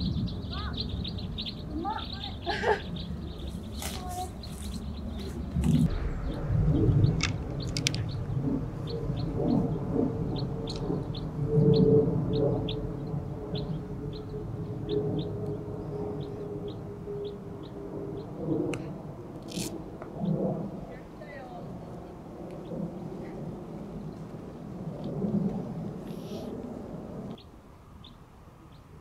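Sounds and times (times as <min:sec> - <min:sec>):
bird chirping: 0:00.0 - 0:18.6
low outdoor rumble: 0:00.0 - 0:29.0.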